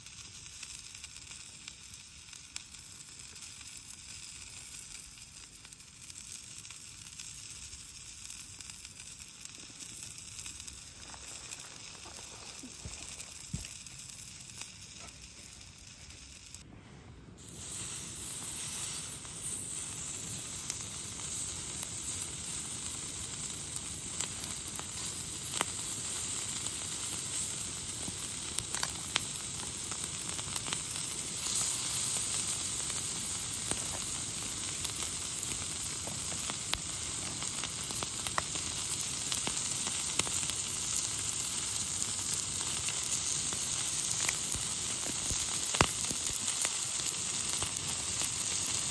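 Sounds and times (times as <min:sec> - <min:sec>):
food sizzling in a pan: 0:00.0 - 0:16.7, 0:17.4 - 0:48.9.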